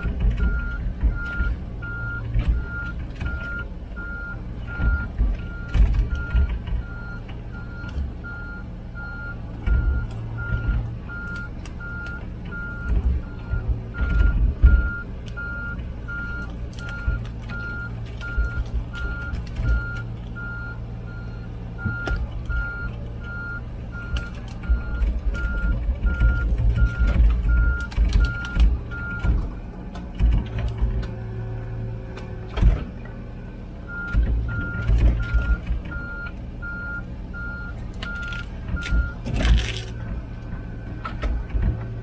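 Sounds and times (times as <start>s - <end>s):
diesel engine running: 0.0s - 42.0s
travel alarm beeping: 0.4s - 29.3s.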